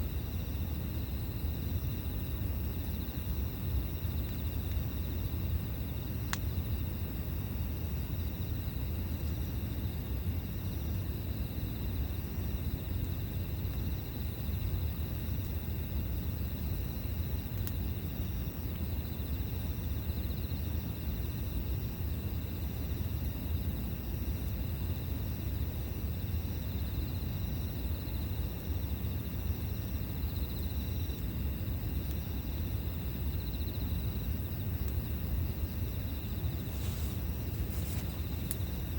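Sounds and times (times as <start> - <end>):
insects trilling: 0.0 - 38.9
campfire pops: 36.4 - 38.9.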